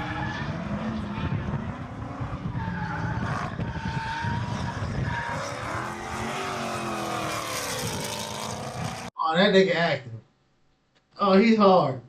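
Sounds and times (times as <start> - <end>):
tyre squeal: 2.4 - 7.4
v eight engine running hard: 5.6 - 9.1.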